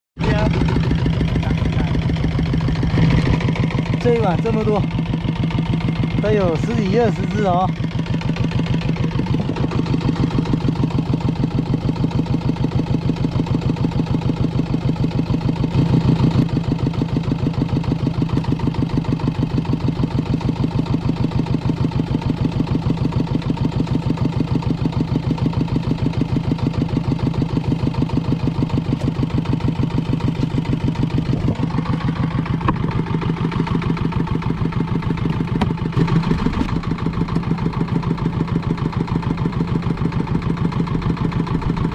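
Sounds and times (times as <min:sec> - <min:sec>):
boat engine chugging: 0:00.2 - 0:41.9.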